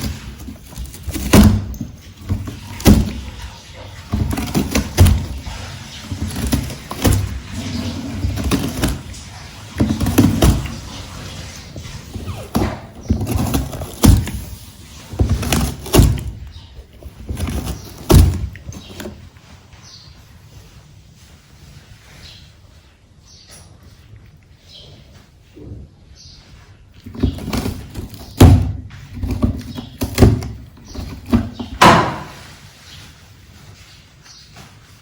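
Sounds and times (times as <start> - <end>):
thumps against cardboard box: 0.0 - 3.4, 4.1 - 9.0, 12.2 - 16.4, 17.0 - 19.2, 27.1 - 32.4
rustling: 0.0 - 35.0.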